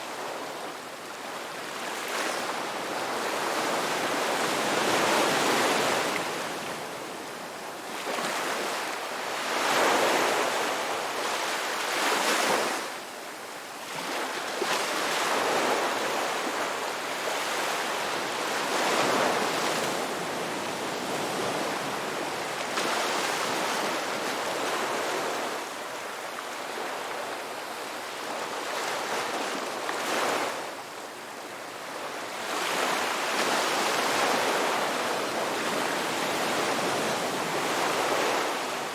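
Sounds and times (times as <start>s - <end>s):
ocean waves on a beach: 0.0s - 38.9s.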